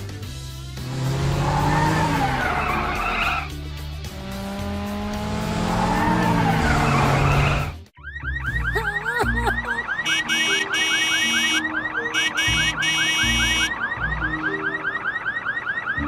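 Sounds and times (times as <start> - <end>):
background music: 0.0 - 16.0
cartoon tyre skid with engine: 0.8 - 7.8.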